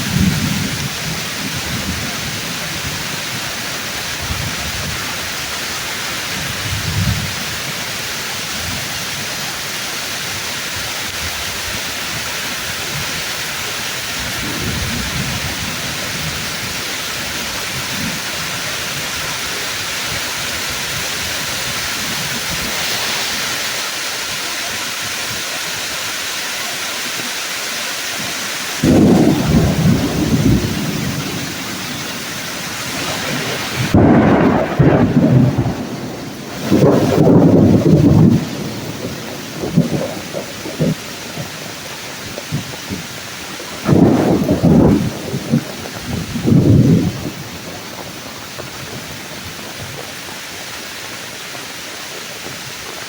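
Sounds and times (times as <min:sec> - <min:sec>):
low thunder rumbles: 0:00.0 - 0:09.0, 0:14.0 - 0:23.0, 0:28.8 - 0:50.6
heavy rain on leaves: 0:00.0 - 0:53.0
loud thunder crash: 0:28.8 - 0:41.7, 0:43.8 - 0:48.3.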